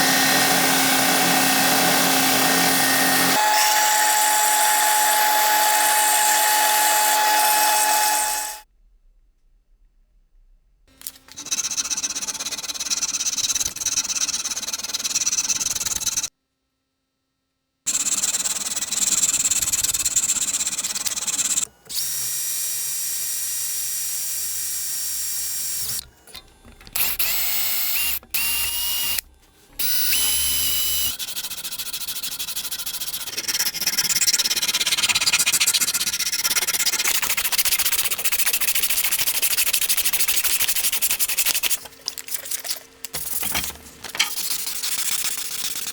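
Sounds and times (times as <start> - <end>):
power tool motor running: 0.0 - 8.6, 27.0 - 41.9
rapid rasping: 30.9 - 45.9.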